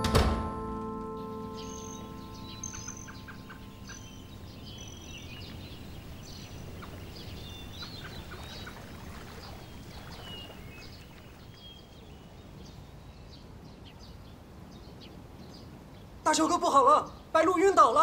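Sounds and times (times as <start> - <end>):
birds chirping and whistling: 1.2 - 11.9.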